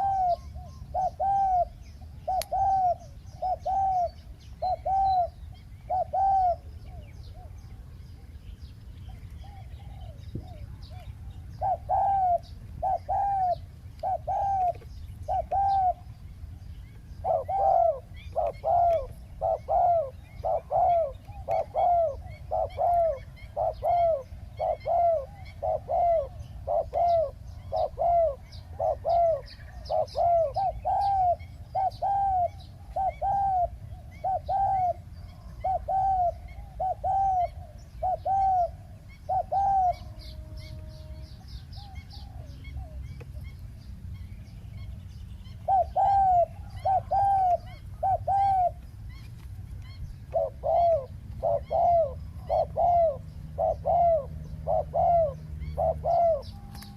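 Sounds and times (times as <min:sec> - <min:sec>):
dove cooing: 0:00.0 - 0:07.9, 0:09.1 - 0:16.2, 0:17.0 - 0:43.5, 0:45.4 - 0:49.2, 0:49.8 - 0:56.9
small birds chirping faintly: 0:00.0 - 0:56.9.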